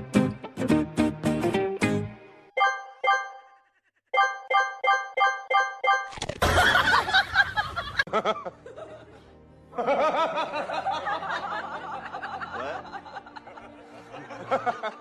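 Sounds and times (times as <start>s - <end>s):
music: 0.0s - 3.3s, 8.1s - 15.0s.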